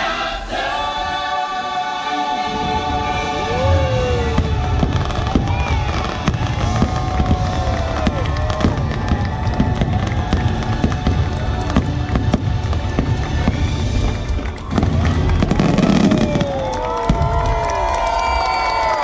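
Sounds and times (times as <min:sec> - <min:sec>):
music playing: 0:00.0 - 0:16.5
low rumble: 0:02.4 - 0:15.6
fireworks bangs and crackles: 0:02.5 - 0:19.0.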